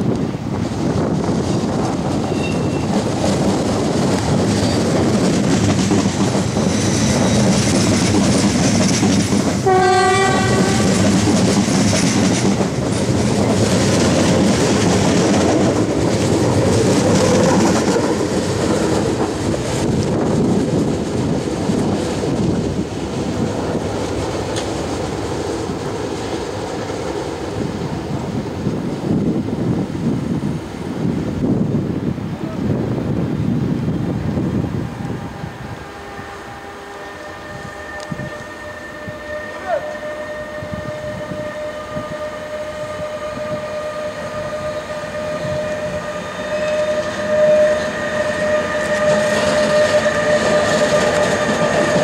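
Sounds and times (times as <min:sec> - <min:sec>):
train wheels on rails: 0:00.0 - 0:52.0
train horn: 0:02.3 - 0:03.0, 0:09.5 - 0:12.8, 0:34.7 - 0:52.0.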